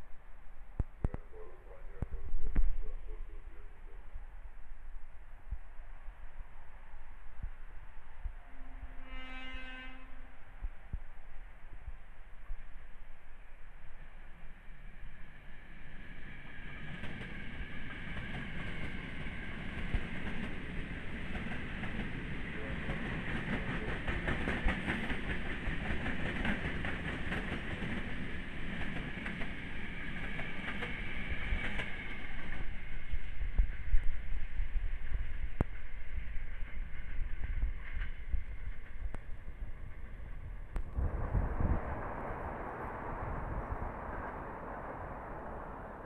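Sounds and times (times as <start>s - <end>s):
electric train whine: 0.0s - 46.0s
low rumble: 36.8s - 46.0s.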